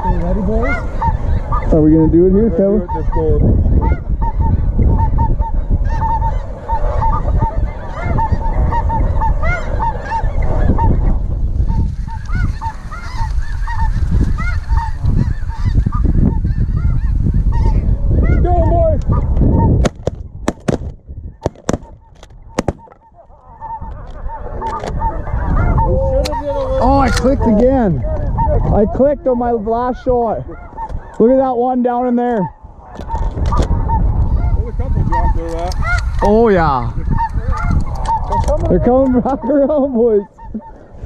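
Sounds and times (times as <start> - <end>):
geese honking: 0.0 - 19.8, 20.6 - 41.0
wind rumble on microphone: 0.0 - 41.0
sharp cracks: 19.8 - 23.0.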